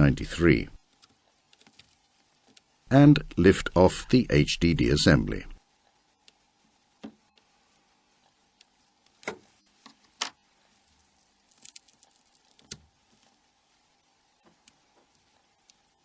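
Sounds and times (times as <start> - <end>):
small parts clicking and tapping: 0.9 - 2.7, 8.6 - 13.3.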